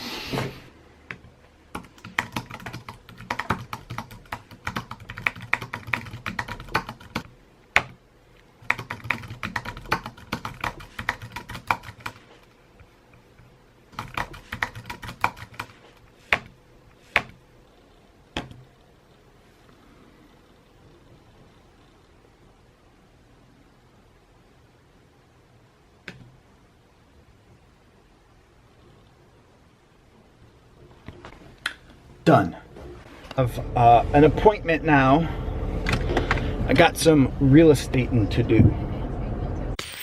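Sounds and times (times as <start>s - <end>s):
typing on computer keyboard: 1.7s - 8.0s, 8.6s - 12.2s, 14.0s - 16.4s.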